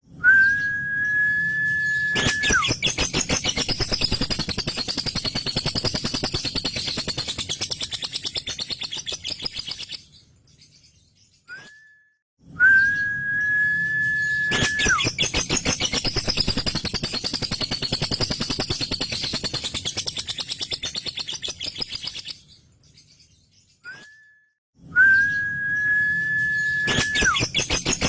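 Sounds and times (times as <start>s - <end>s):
high bird whistle: 0.2s - 9.3s, 12.6s - 21.8s, 23.9s - 28.0s.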